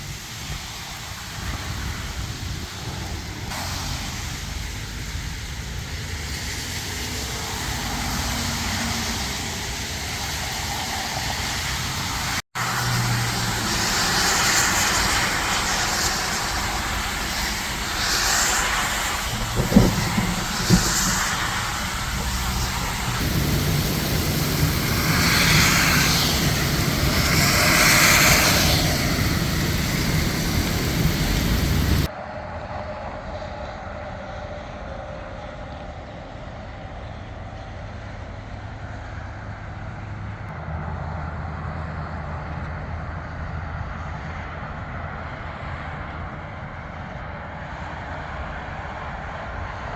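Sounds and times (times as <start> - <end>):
heavy rain: 0.0 - 32.1
tyres spraying water: 0.0 - 32.1
road traffic hissing: 0.0 - 32.2.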